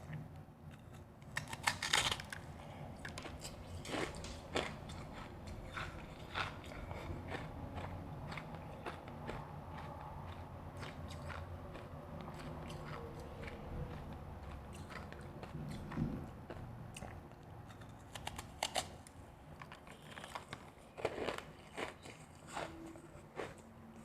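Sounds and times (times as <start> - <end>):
person crunching ice: 1.4 - 2.4.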